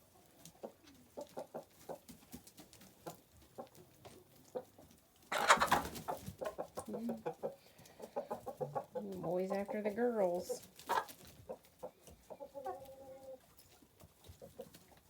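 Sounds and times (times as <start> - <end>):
chickens clucking: 0.0 - 15.0
loud chicken squawk: 5.3 - 6.7.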